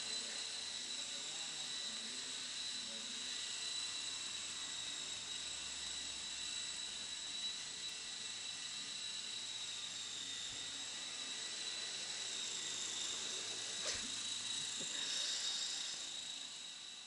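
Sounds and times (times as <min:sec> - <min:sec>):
model helicopter motor whine: 0:00.0 - 0:17.0.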